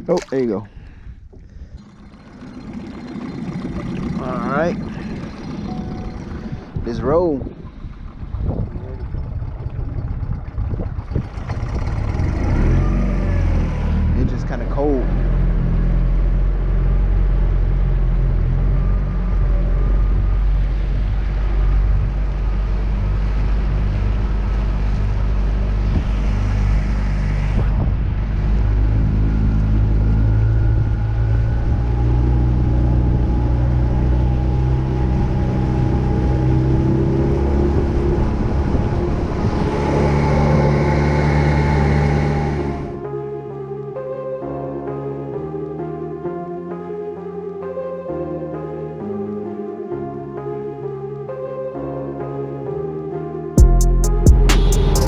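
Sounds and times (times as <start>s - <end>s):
outboard motor running: 0.0s - 43.8s.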